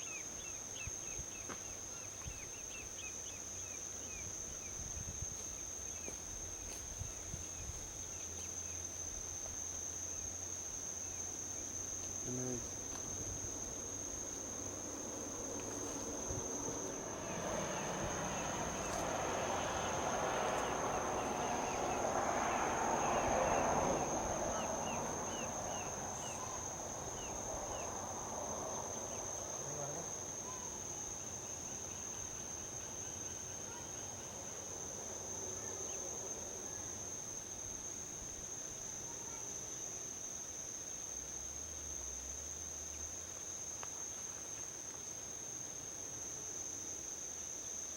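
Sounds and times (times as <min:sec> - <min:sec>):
insects trilling: 0:00.0 - 0:47.9
vehicle passing on highway: 0:12.7 - 0:31.0.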